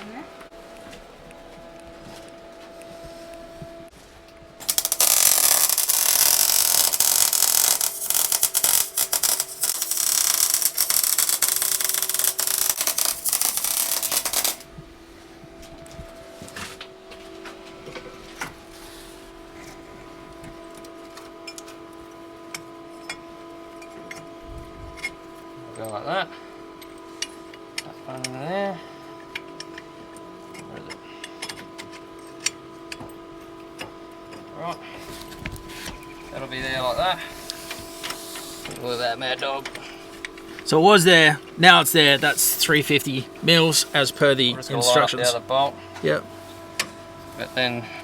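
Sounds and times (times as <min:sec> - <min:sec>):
low steady hum: 0:00.0 - 0:48.0
welding arc crackling and hissing: 0:04.6 - 0:14.7, 0:36.3 - 0:45.7.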